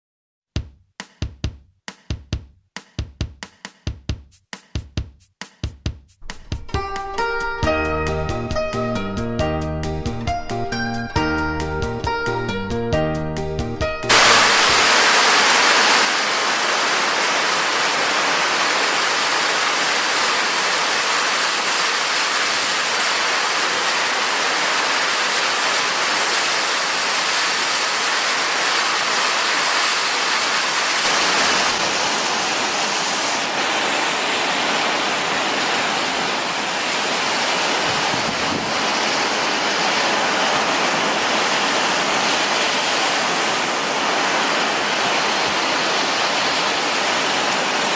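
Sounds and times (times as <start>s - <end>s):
heavy rain pouring: 14.1s - 47.9s.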